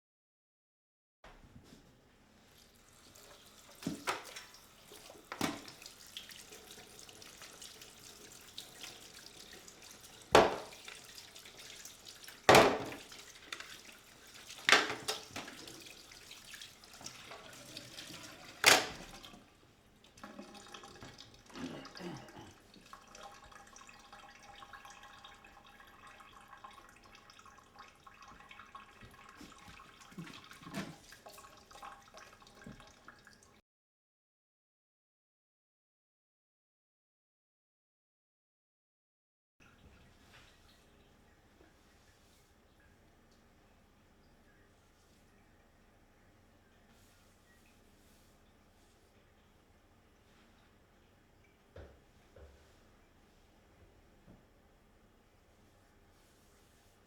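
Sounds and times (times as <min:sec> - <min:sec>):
tap running into sink: 0:03.3 - 0:06.4, 0:10.2 - 0:11.1, 0:12.3 - 0:13.9, 0:14.5 - 0:15.9, 0:17.0 - 0:19.4, 0:28.2 - 0:31.5, 0:51.7 - 0:52.8.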